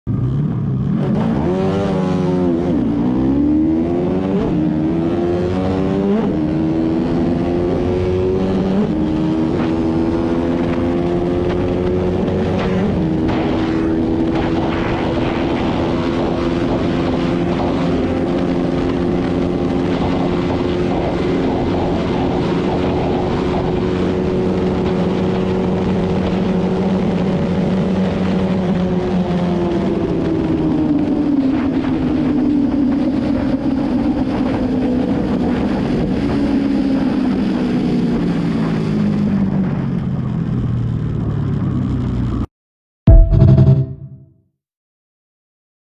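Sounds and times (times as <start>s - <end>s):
motorcycle engine accelerating: 0.1s - 42.5s, 43.1s - 44.2s.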